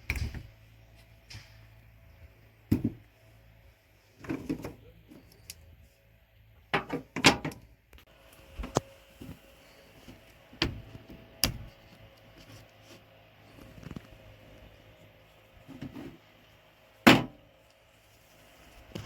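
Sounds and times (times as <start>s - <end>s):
sharp knocks and clunks: 2.7s - 3.1s.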